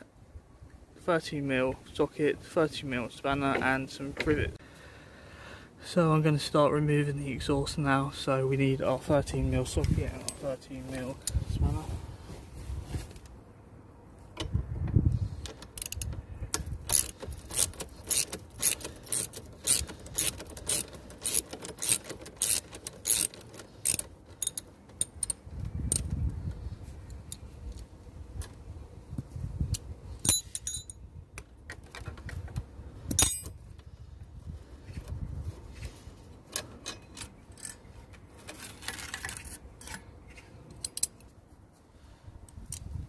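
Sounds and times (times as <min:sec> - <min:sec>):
ratchet clicking: 0:15.4 - 0:26.1
metal tool clinks: 0:30.2 - 0:31.0.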